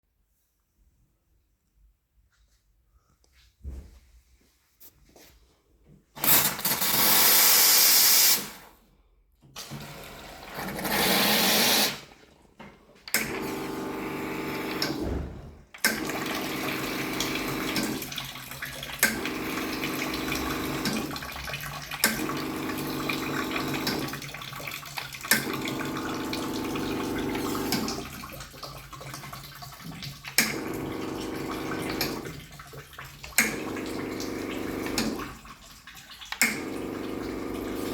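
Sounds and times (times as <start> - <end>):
espresso machine pump humming: 13.4 - 14.9, 16.1 - 17.9, 19.1 - 21.1, 22.0 - 24.1, 25.4 - 28.0, 30.5 - 32.2, 33.4 - 35.2, 36.4 - 37.9.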